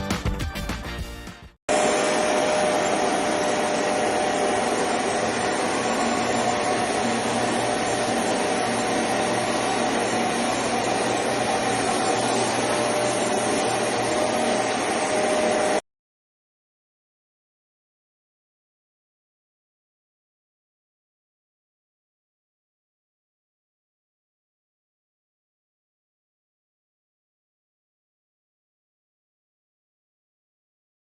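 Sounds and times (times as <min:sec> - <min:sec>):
carpet cleaner suction motor: 0:01.7 - 0:15.8.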